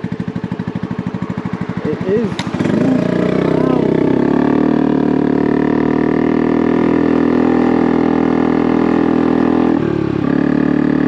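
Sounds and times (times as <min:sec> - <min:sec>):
small engine running: 0:01.0 - 0:06.2.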